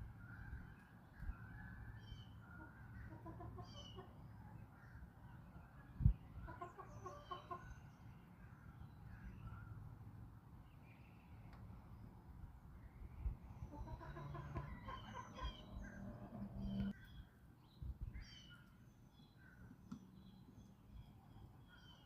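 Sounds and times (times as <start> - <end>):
birds calling faintly: 0.0 - 22.0
chickens clucking: 2.6 - 4.3, 6.3 - 7.8, 13.6 - 17.0.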